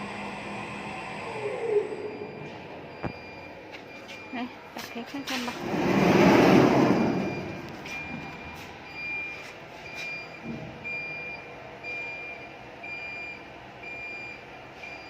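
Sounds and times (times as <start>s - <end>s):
electronic warning beeper: 1.1s - 15.0s.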